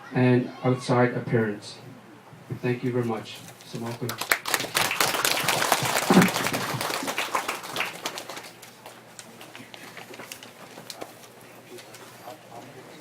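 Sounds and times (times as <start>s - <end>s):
audience clapping: 3.7s - 11.0s.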